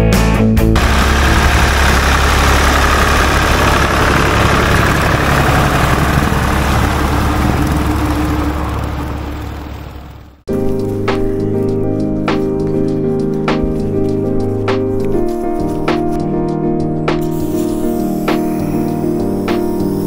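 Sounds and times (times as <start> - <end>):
engine running: 0.8 - 11.1.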